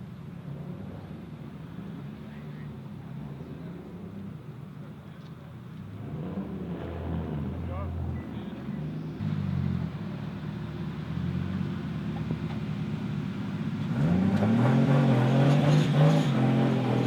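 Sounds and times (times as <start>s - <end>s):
car engine revving: 13.7s - 17.0s.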